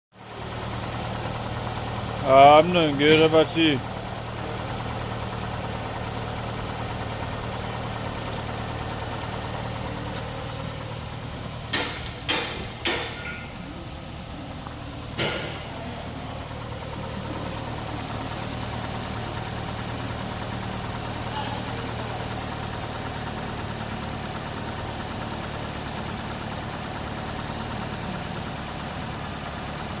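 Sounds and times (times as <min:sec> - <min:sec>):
car engine idling: 0:00.2 - 0:30.0
sharp knocks: 0:11.7 - 0:13.6, 0:15.2 - 0:15.9.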